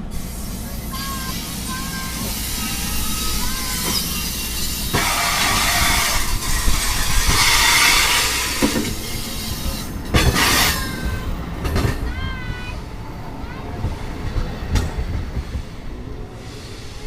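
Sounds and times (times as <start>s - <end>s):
train cars and wheels rushing: 0.0s - 17.0s
high squealing tones: 1.0s - 9.6s
train wheels knocking: 1.0s - 12.6s.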